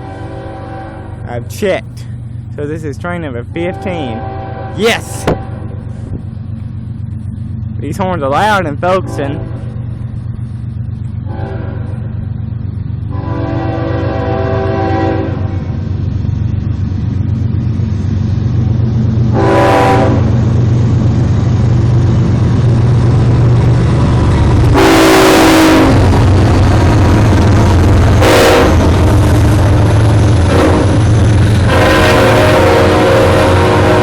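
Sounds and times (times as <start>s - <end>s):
locomotive horn blasts: 0.0s - 1.3s, 3.5s - 5.7s, 8.9s - 9.8s, 11.3s - 12.1s, 13.1s - 15.8s, 19.3s - 20.4s, 24.7s - 26.2s, 28.1s - 29.2s, 30.4s - 34.0s
diesel locomotive rumble: 0.0s - 34.0s.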